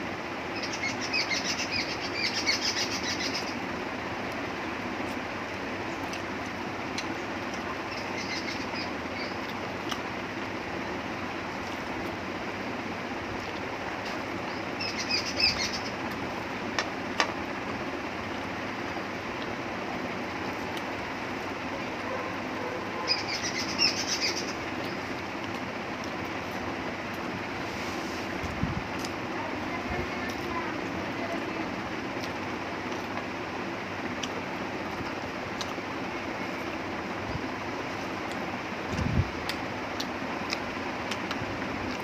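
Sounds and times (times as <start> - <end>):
small birds chirping: 0.1 - 12.2, 13.4 - 16.7, 20.4 - 27.2
eating clicks and chewing: 6.0 - 7.7, 9.3 - 10.1, 32.1 - 33.3, 34.1 - 35.8, 38.2 - 38.5, 39.4 - 42.0.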